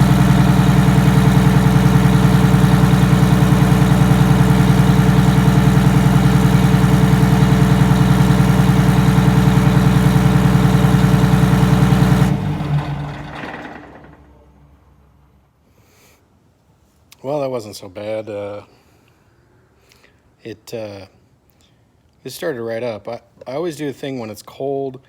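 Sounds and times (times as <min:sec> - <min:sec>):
diesel engine idling: 0:00.0 - 0:14.8.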